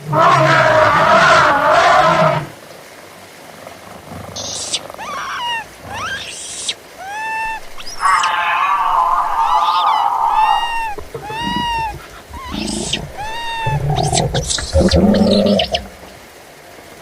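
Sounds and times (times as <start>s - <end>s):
loud blaring animal call: 4.4s - 16.1s
short sweeping animal calls: 4.4s - 16.1s.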